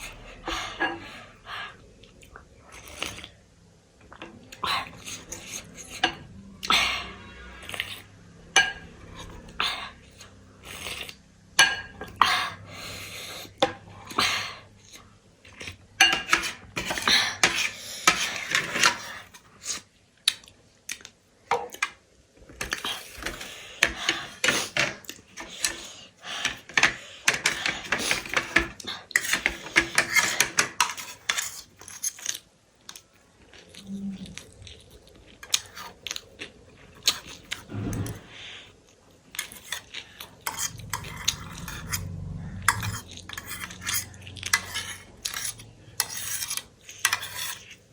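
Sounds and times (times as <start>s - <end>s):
cutlery clinking on a dish: 16.0s - 19.2s, 22.6s - 32.2s, 42.7s - 47.8s.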